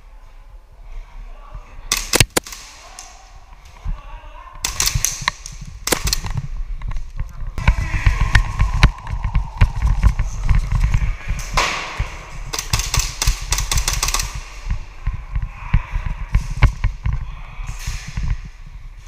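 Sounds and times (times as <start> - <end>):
low microphone rumble: 3.8 - 12.6, 14.2 - 19.0.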